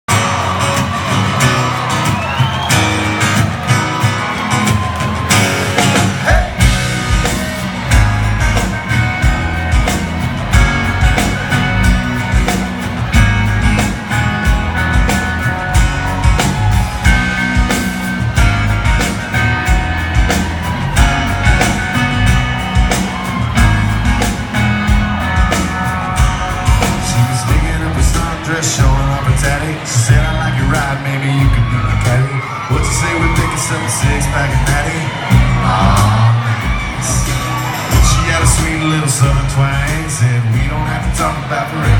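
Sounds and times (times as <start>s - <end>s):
steady drum beat: 0.1s - 41.9s
person singing: 26.8s - 41.9s.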